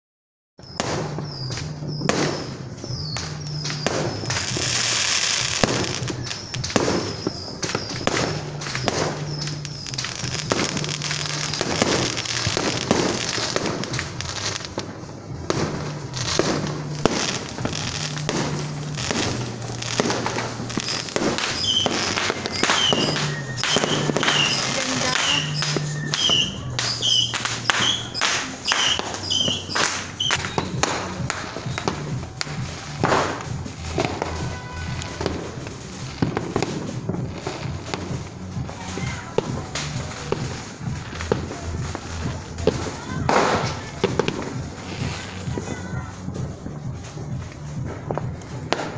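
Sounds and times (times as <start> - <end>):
fireworks bangs and pops: 0.6 - 48.9.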